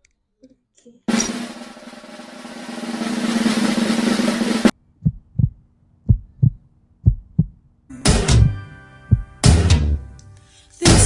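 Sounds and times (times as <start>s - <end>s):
snare drum roll: 1.1s - 4.7s
heartbeat-like double thumps: 3.5s - 7.6s.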